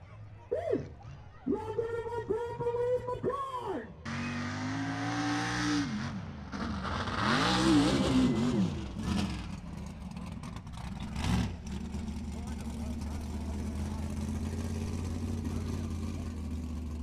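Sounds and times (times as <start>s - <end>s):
truck engine revving: 4.1s - 17.0s.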